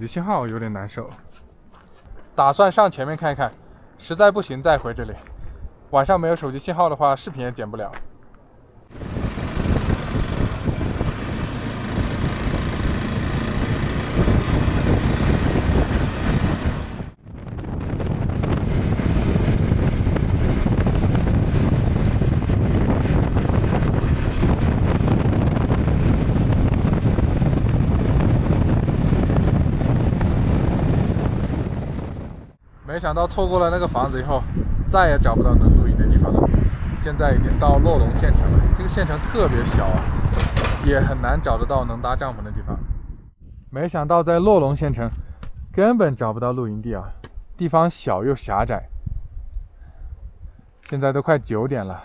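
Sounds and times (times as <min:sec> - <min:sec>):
motorcycle riding: 0:08.9 - 0:32.6
wind buffeting microphone: 0:08.9 - 0:45.8, 0:47.0 - 0:51.5.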